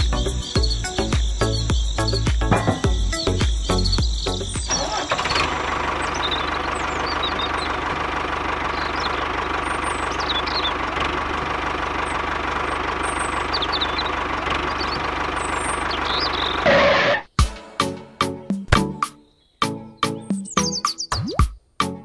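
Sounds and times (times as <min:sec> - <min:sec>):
diesel tractor engine idling: 0:00.0 - 0:17.2.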